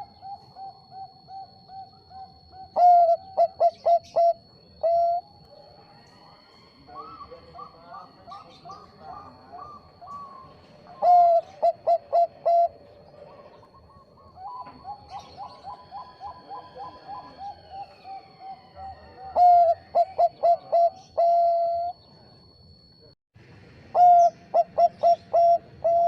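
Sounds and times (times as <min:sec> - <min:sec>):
dove cooing: 0:00.0 - 0:22.7, 0:23.9 - 0:26.0.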